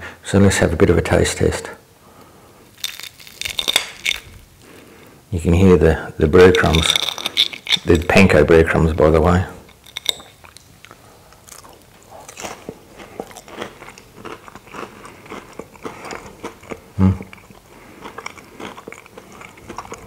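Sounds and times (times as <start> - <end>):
person chewing crunchy food: 2.6 - 5.1, 6.4 - 8.2, 9.6 - 20.0.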